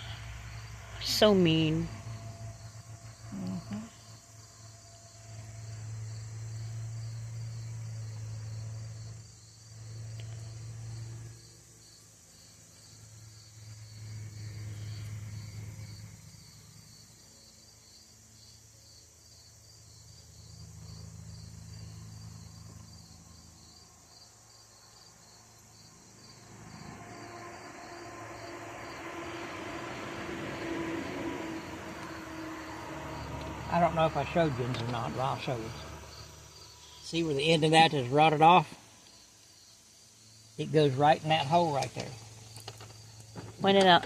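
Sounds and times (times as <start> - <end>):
low hum: 0.0 - 43.6
crickets chirping: 0.0 - 44.0
rush of noise: 26.0 - 37.4.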